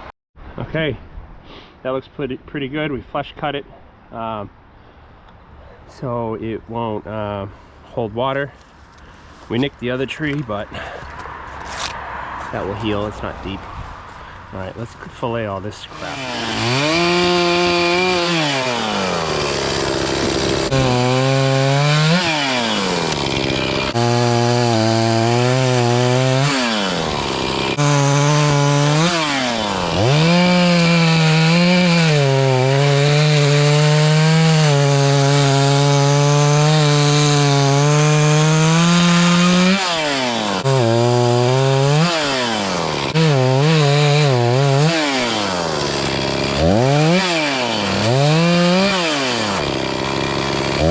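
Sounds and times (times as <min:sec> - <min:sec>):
chainsaw engine revving while cutting: 0:15.9 - 0:50.9.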